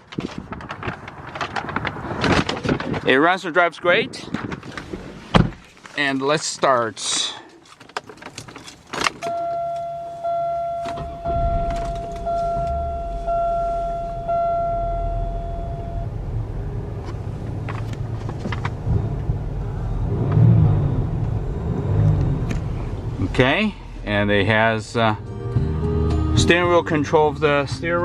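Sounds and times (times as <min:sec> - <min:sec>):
car engine starting and idling: 0:09.0 - 0:28.0
dashboard warning chime: 0:09.2 - 0:16.3.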